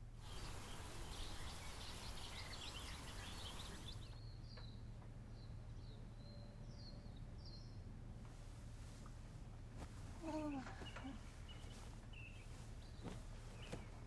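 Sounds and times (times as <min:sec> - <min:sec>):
steady hiss: 0:00.0 - 0:04.1
small birds chirping: 0:00.0 - 0:07.8, 0:09.4 - 0:14.0.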